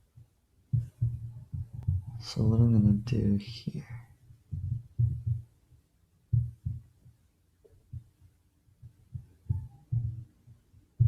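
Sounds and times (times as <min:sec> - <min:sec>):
soft low thumps: 0:00.1 - 0:05.5, 0:06.3 - 0:08.2, 0:08.8 - 0:11.0.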